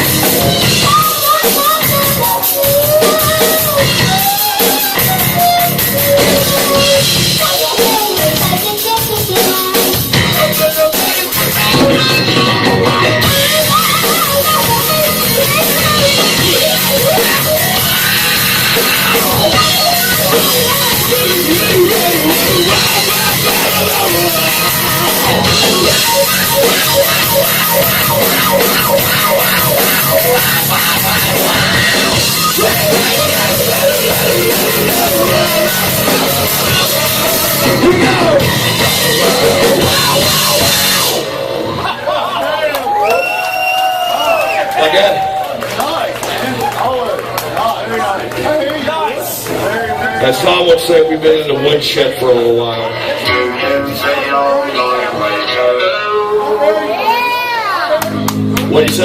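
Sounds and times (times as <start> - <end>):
pounding drum kit: 0.0 - 41.9
distorted electric guitars: 0.0 - 42.2, 51.4 - 59.0.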